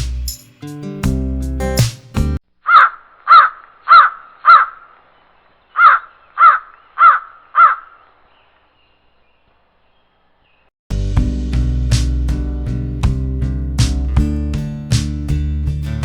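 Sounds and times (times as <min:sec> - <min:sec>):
bird harsh caw calls: 0:02.6 - 0:10.6.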